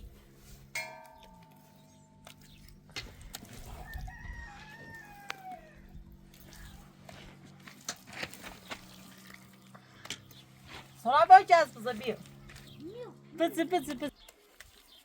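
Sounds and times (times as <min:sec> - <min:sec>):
rooster crowing: 0:03.7 - 0:06.0.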